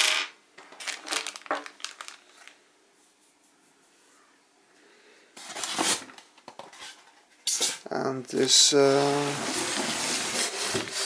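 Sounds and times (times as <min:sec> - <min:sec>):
packaging crinkling: 0:00.6 - 0:02.6.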